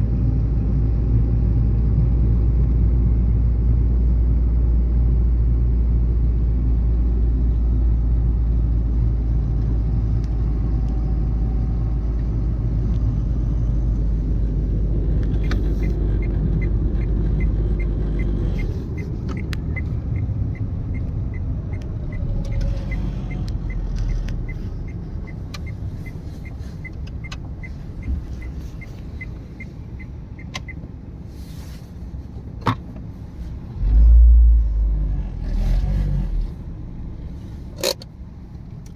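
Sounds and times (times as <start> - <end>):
car engine and road rumble: 0.0 - 38.9
turn signal ticking: 12.8 - 33.7.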